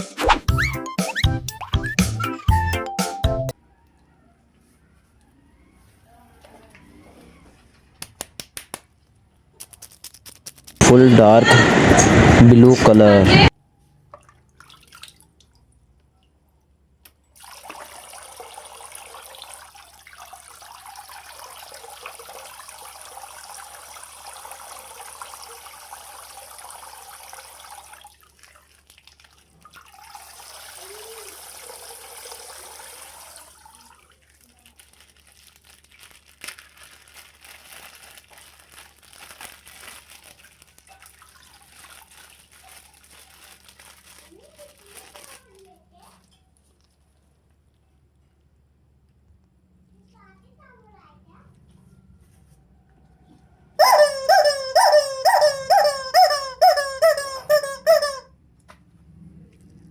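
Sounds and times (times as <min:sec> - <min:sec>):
plastic crinkling: 0:09.5 - 0:10.8, 0:34.1 - 0:47.8
water dripping: 0:14.1 - 0:16.4, 0:17.0 - 0:31.8
water running in a stream: 0:17.4 - 0:34.4.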